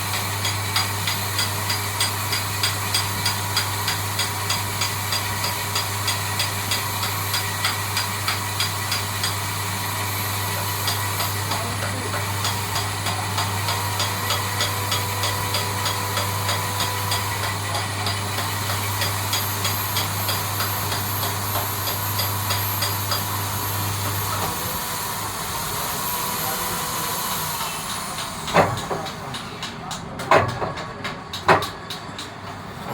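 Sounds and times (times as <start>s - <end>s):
lathe machine hum: 0.0s - 29.7s.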